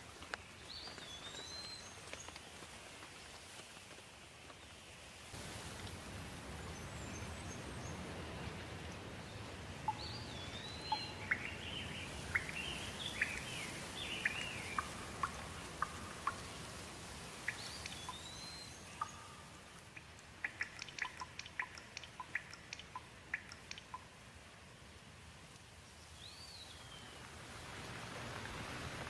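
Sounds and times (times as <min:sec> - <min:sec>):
steady rain hiss: 0:00.0 - 0:29.0
songbirds singing: 0:00.3 - 0:02.5, 0:05.4 - 0:24.1, 0:25.8 - 0:29.0
sharp water drips: 0:05.4 - 0:24.3.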